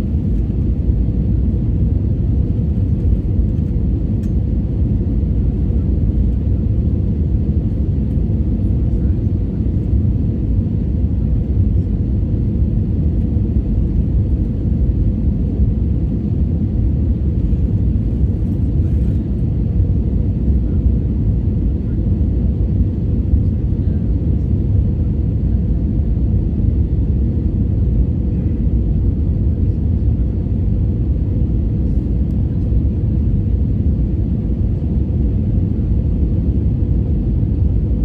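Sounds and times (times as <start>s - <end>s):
jet airliner cabin rumble: 0.0s - 38.0s.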